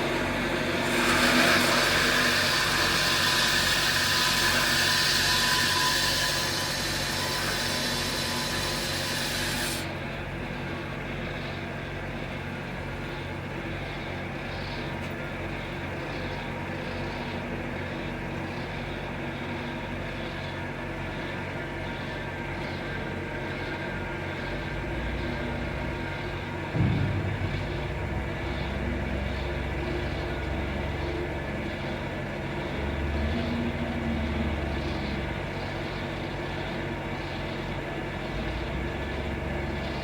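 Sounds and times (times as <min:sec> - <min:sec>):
bandsaw humming: 0:00.0 - 0:09.9, 0:26.8 - 0:30.6.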